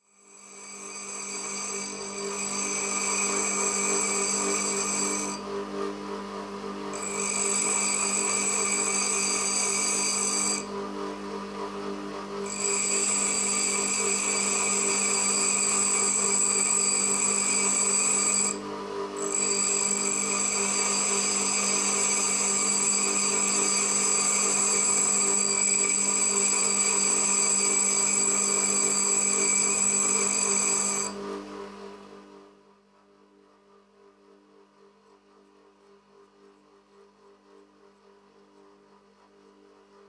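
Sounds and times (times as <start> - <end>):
power tool grinding metal: 0.1 - 5.4, 7.0 - 10.7, 12.4 - 18.6, 19.2 - 31.2.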